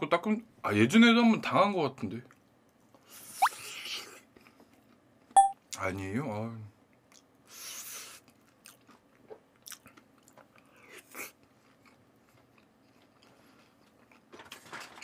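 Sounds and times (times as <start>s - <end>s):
person chewing fried chicken: 7.0s - 14.3s.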